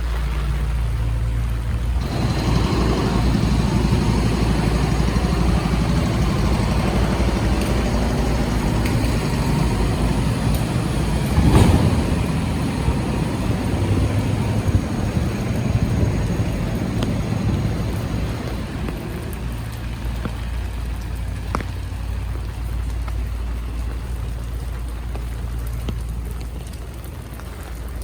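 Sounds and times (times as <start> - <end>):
traffic rumble on wet street: 0.0 - 28.0
vehicle passing: 2.0 - 21.0.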